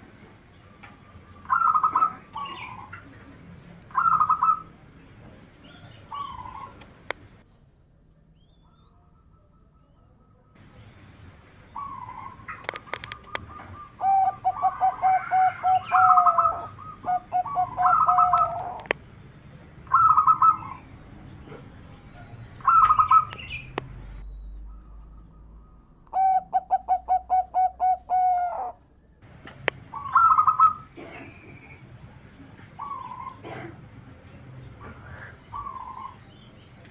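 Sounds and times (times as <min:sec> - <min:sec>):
dove cooing: 0:00.8 - 0:04.8, 0:05.6 - 0:07.0, 0:11.8 - 0:18.9, 0:19.9 - 0:20.8, 0:22.6 - 0:23.5, 0:24.7 - 0:28.8, 0:29.9 - 0:31.6, 0:32.8 - 0:33.8, 0:34.9 - 0:36.2.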